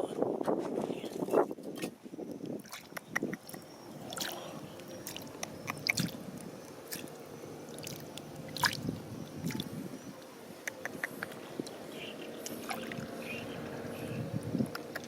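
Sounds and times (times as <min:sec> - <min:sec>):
water squishes and drips: 0:01.1 - 0:09.8, 0:12.4 - 0:13.7.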